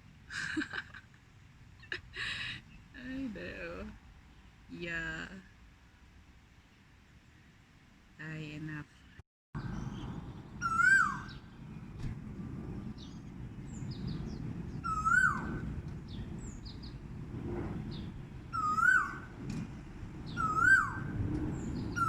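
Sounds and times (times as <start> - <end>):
low background noise: 0.0 - 9.2
bird whistle rising then dropping: 10.6 - 11.4, 14.8 - 15.6, 18.5 - 19.3, 20.3 - 21.1.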